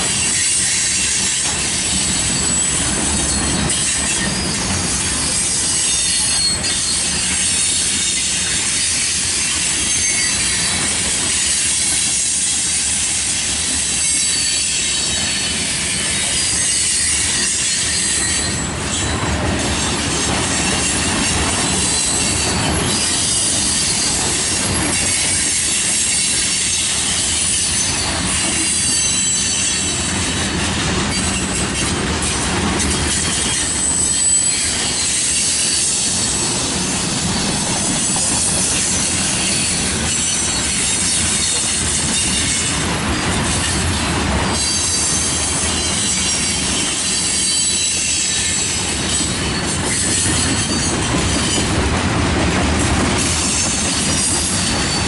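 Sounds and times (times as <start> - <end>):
train wheels rumbling: 0.0 - 55.0
high-pitched wheel squeal: 0.1 - 30.4, 33.0 - 42.7, 44.6 - 51.7
clacks over rail joints: 13.6 - 55.0.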